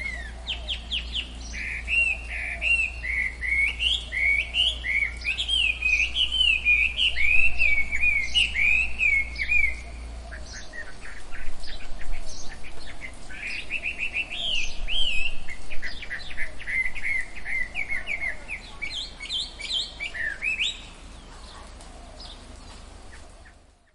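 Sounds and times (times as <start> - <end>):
birds calling: 0.0 - 23.9
low background hiss: 0.0 - 23.9.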